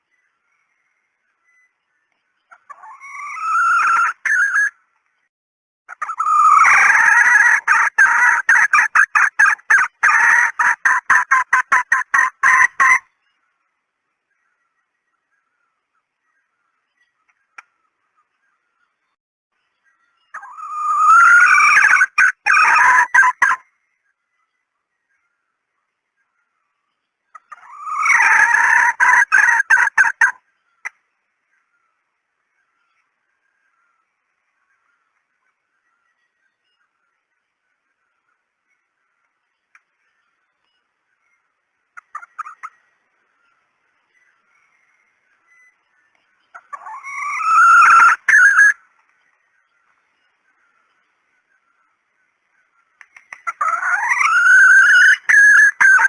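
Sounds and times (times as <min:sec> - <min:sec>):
hen calling and clucking: 0:02.4 - 0:05.0, 0:05.9 - 0:13.7, 0:20.2 - 0:24.0, 0:26.2 - 0:56.0
hen clucking call: 0:02.5 - 0:04.8, 0:05.9 - 0:13.1, 0:20.3 - 0:23.6, 0:27.3 - 0:30.4, 0:46.5 - 0:48.8, 0:53.4 - 0:56.0.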